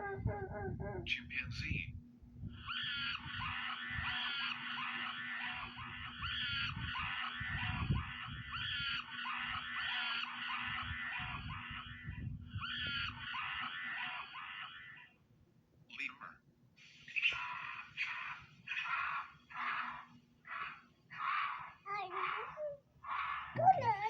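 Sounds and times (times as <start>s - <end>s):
chimpanzee hoots and screams: 2.6s - 15.1s, 17.4s - 24.0s.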